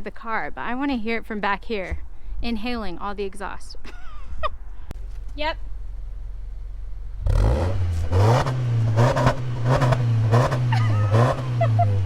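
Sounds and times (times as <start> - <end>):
car engine idling and revving: 4.9 - 12.0.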